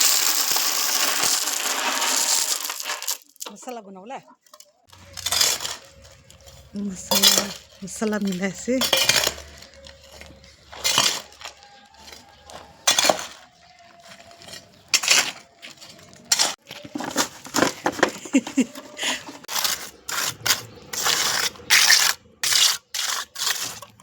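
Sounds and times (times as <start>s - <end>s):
metal spoon scraping cookware: 4.5s - 17.7s, 18.4s - 24.0s.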